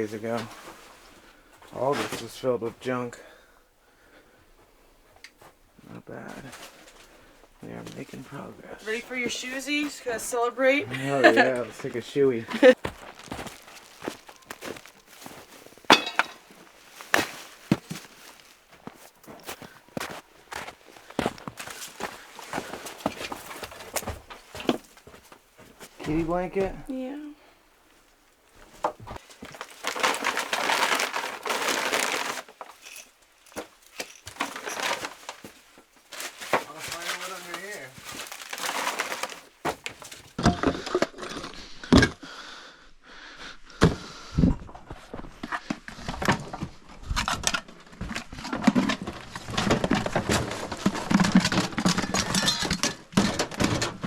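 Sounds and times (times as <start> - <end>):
material rustling and crinkling: 11.3 - 26.6, 28.0 - 40.4
junk clattering and knocking: 15.9 - 16.5, 48.5 - 54.0.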